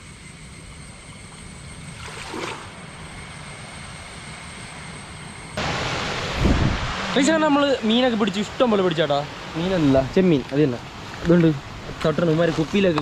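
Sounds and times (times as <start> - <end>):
steady rushing noise: 3.0 - 13.0.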